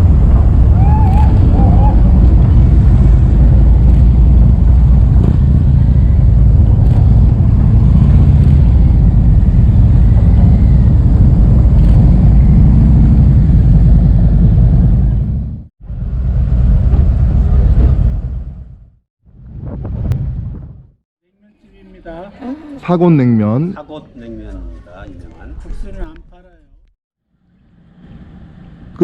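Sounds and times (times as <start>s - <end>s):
motorcycle engine rumble: 0.0s - 21.0s
wind buffeting microphone: 0.0s - 21.0s.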